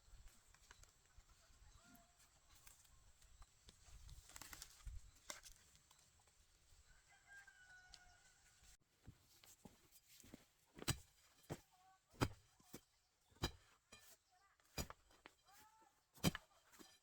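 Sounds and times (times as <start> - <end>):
distant rooster crowing: 6.8 - 8.6.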